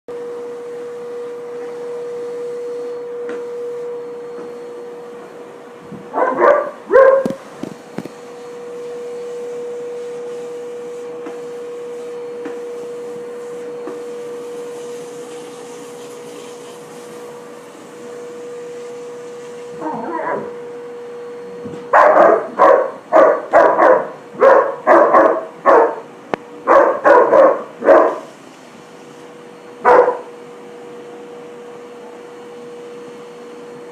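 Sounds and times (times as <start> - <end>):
vacuum cleaner motor drone: 0.1 - 33.9
dog barking: 6.1 - 7.4, 19.8 - 20.6, 21.9 - 28.3, 29.8 - 30.3.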